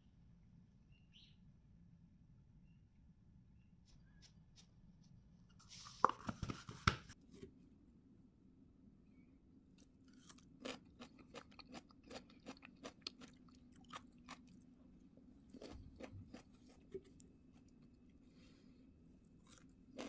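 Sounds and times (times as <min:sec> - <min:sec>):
crunchy chewing: 0:09.8 - 0:18.4, 0:19.2 - 0:20.0.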